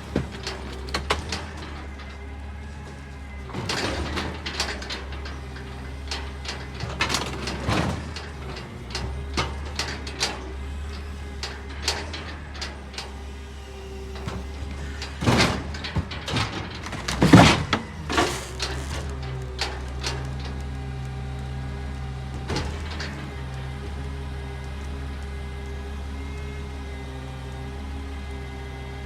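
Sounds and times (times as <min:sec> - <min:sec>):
metal clanks and knocks: 0:00.0 - 0:13.2, 0:14.2 - 0:20.6
garbage truck engine humming: 0:00.0 - 0:29.0.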